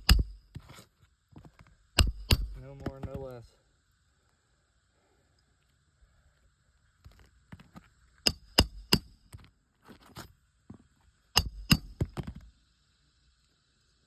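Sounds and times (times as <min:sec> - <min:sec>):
small taps and scrapes: 0:00.5 - 0:01.7, 0:02.8 - 0:03.3, 0:07.0 - 0:08.0
hammer blows on roofing nails: 0:02.0 - 0:03.0, 0:08.3 - 0:09.1, 0:11.4 - 0:12.3.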